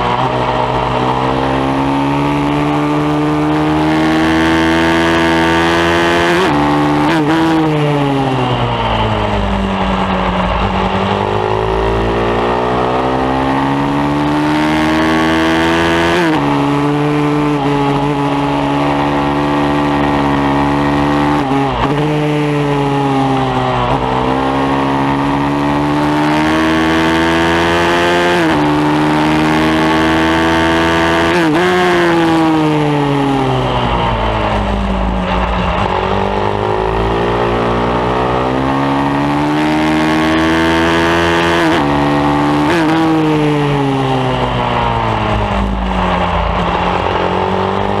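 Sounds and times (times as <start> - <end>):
motorbike engine revving: 0.0 - 48.0
wind rush: 42.8 - 48.0.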